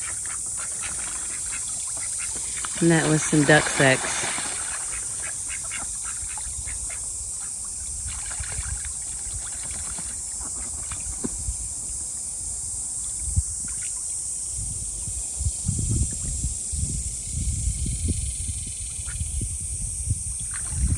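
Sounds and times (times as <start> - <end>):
steady high hiss: 0.0 - 8.1
ducks splashing in water: 0.0 - 11.4, 20.4 - 20.9.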